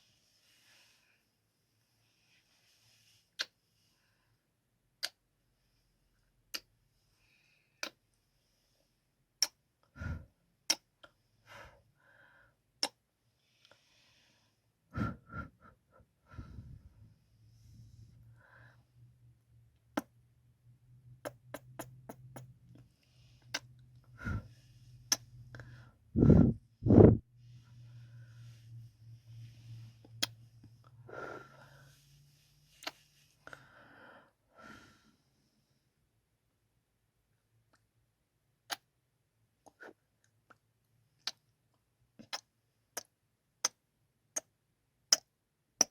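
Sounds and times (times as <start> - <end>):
soft breaths: 0.0 - 4.5, 5.5 - 9.2, 9.9 - 10.4, 13.3 - 19.4, 21.2 - 36.0
soft breathy kisses: 3.3 - 3.6, 5.0 - 5.2, 6.5 - 6.7, 7.8 - 8.0, 21.3 - 23.8, 25.1 - 25.3, 30.0 - 30.4, 32.8 - 33.1
lip smacks and kisses: 3.4 - 3.6, 5.0 - 5.2, 6.5 - 6.7, 12.8 - 13.0, 21.2 - 22.8, 25.1 - 25.3, 32.8 - 33.0, 41.2 - 41.4, 42.2 - 43.8
faint low hum: 14.4 - 37.7.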